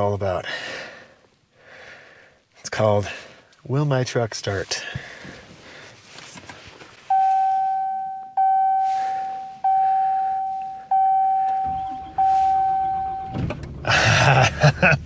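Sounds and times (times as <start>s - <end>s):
dashboard warning chime dings: 7.1s - 13.5s
faint low rumble: 7.2s - 15.0s.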